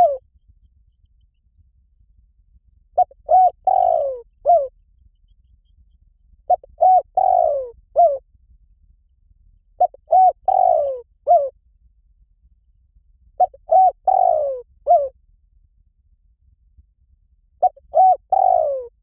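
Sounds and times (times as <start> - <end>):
dove cooing: 0.0 - 0.2, 3.0 - 4.7, 6.5 - 8.2, 9.8 - 11.5, 13.4 - 15.1, 17.6 - 19.0.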